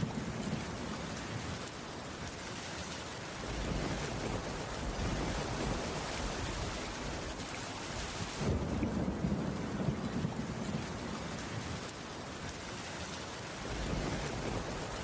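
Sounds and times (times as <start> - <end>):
rain hissing: 3.4 - 12.4, 13.3 - 15.0.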